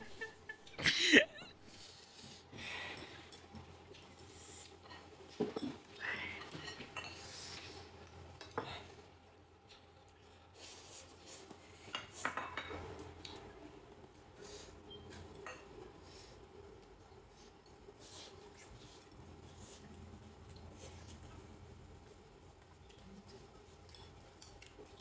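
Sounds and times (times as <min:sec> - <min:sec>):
utensils clinking on dishes: 0:06.4 - 0:07.4, 0:11.8 - 0:13.2.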